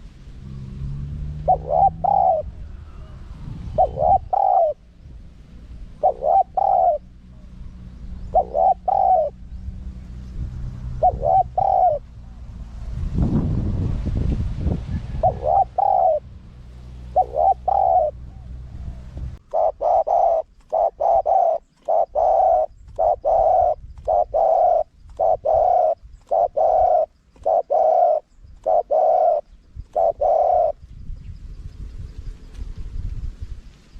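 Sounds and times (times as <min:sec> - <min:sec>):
dove cooing: 0:01.3 - 0:09.6, 0:10.8 - 0:12.4, 0:15.1 - 0:16.3, 0:16.9 - 0:30.8.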